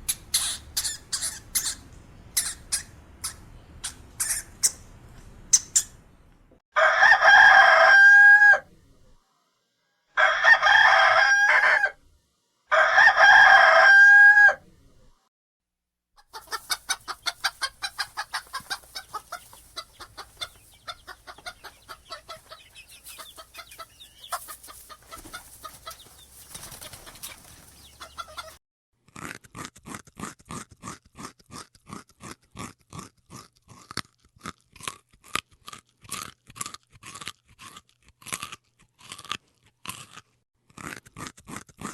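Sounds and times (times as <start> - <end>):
chickens clucking: 0.0 - 4.8, 16.2 - 28.6
rooster crowing: 6.8 - 8.7, 10.1 - 12.0, 12.7 - 14.6.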